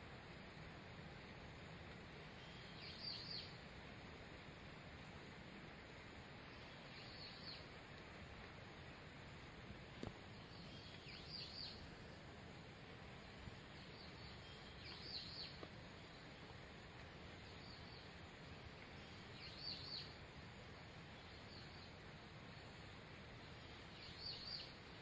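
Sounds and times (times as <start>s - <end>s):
faint forest background hiss: 0.0s - 25.0s
bird chirping: 2.3s - 3.6s, 6.5s - 7.7s, 10.4s - 12.0s, 13.6s - 16.3s, 17.4s - 20.2s, 23.9s - 24.8s.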